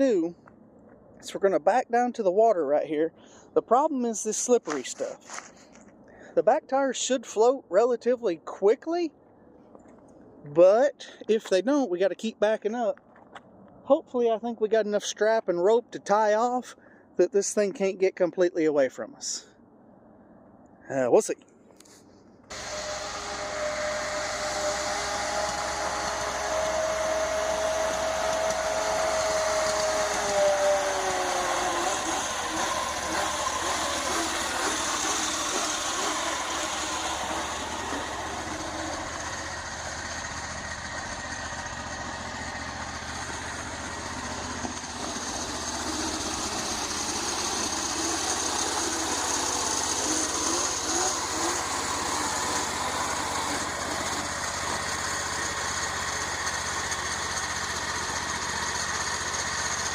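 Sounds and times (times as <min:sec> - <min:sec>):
small gasoline engine running: 0:22.5 - 0:59.9.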